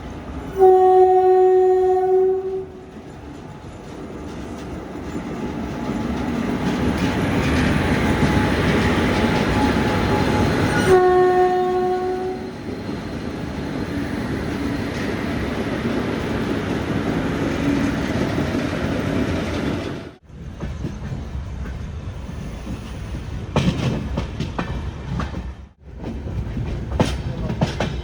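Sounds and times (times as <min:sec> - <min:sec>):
train rumble and clatter: 0:00.0 - 0:28.0
train horn blasts: 0:00.5 - 0:02.9, 0:09.8 - 0:12.6.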